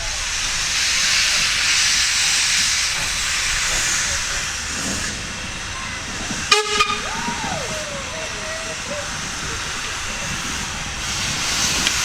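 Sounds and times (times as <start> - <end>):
steam locomotive hissing: 0.0 - 12.0
sharp high-pitched tone: 6.5 - 7.1.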